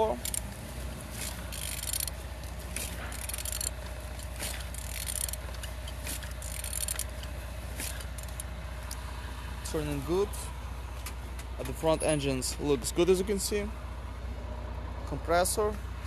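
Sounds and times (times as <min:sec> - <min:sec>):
metallic scrapes and clicks: 0:00.1 - 0:08.5.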